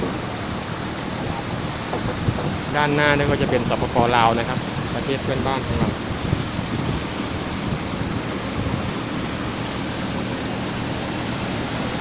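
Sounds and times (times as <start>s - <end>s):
water rushing past boat: 0.0s - 12.0s.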